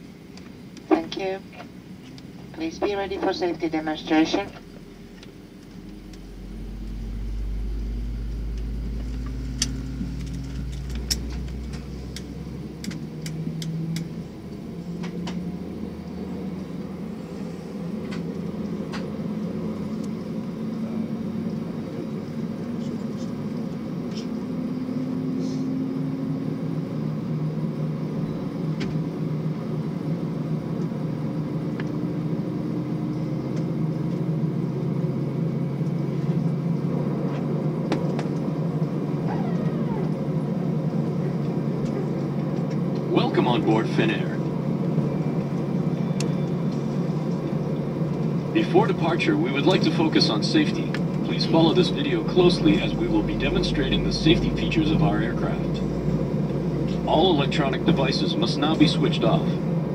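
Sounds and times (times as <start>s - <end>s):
deep rumble: 0.8s - 24.5s, 33.0s - 59.9s
jet engine spooling up: 3.6s - 18.3s
sharp clicks in cabin: 8.5s - 14.2s.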